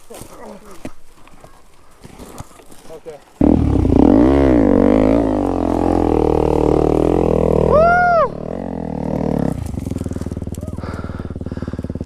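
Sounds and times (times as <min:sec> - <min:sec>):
dirt bike engine revving: 0:03.4 - 0:12.0.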